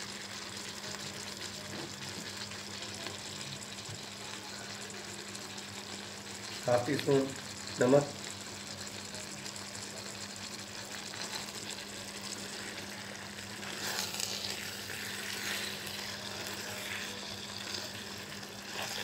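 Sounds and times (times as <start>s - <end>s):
food sizzling in a wok: 0.0s - 19.0s
spatula scraping: 13.5s - 19.0s.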